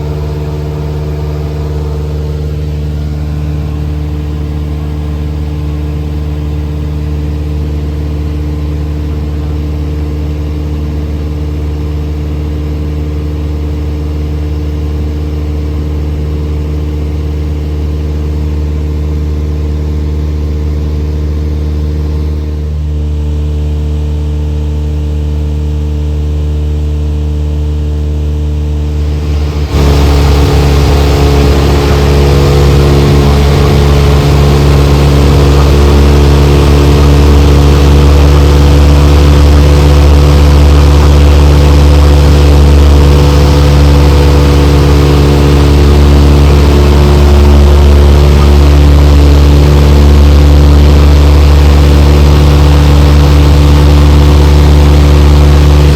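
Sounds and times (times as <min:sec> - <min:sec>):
airplane engine droning in cabin: 0:00.0 - 0:55.9
rushing noise: 0:29.0 - 0:55.9.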